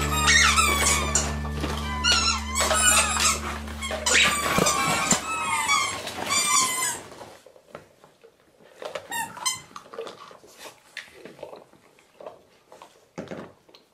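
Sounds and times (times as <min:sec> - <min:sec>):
squeaky toys squeaking: 0:00.0 - 0:07.1.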